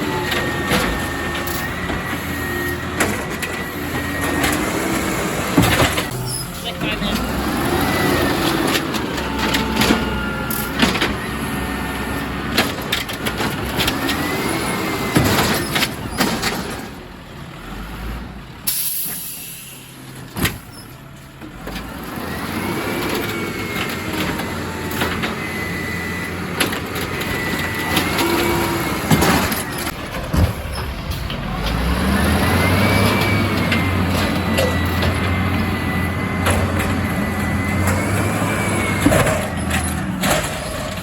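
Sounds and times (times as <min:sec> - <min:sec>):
garbage truck hydraulic whine: 0:00.0 - 0:17.8, 0:18.5 - 0:41.0
knocks and clunks: 0:00.2 - 0:07.4, 0:26.5 - 0:41.0
air brake hiss: 0:18.7 - 0:20.0.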